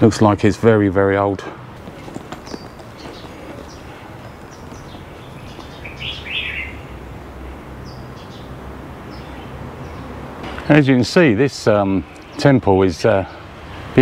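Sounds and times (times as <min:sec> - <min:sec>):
birds chirping: 0:00.8 - 0:14.0.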